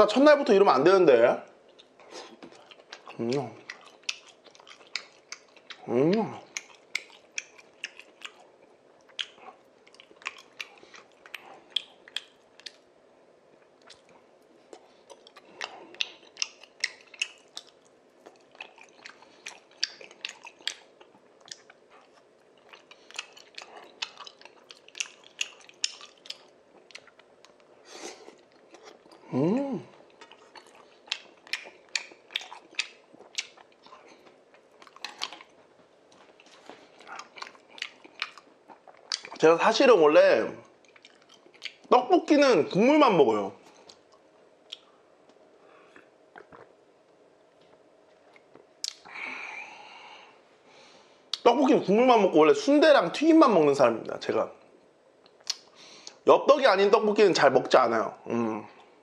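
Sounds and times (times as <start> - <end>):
close chewing: 1.7 - 12.9, 13.6 - 39.6, 40.6 - 41.9
wet mouth clicks: 10.2 - 12.8, 48.4 - 49.1, 55.3 - 56.2.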